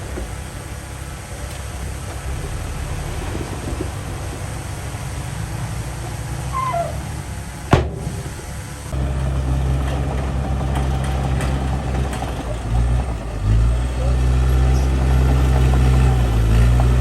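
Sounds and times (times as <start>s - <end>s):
diesel engine rumbling: 0.0s - 17.0s
brief squeaky call: 6.5s - 7.1s.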